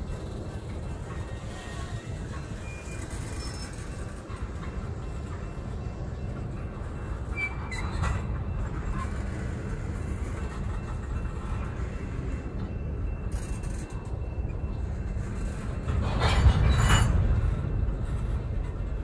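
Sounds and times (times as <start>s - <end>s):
train wheels rumbling on rail: 0.0s - 19.0s
wheel squeals and clinks: 1.1s - 4.6s, 7.3s - 9.3s.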